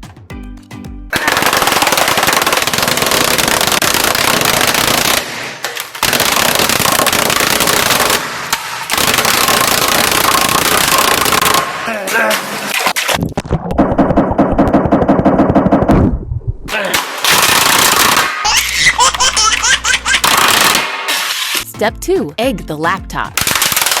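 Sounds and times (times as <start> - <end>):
automatic gunfire bangs: 1.1 - 11.8.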